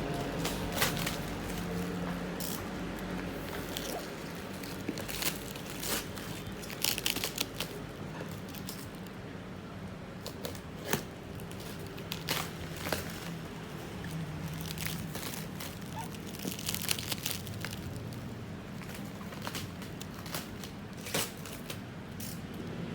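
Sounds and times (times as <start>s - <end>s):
plastic wrap crinkling and tearing: 0.0s - 9.4s, 10.2s - 22.4s.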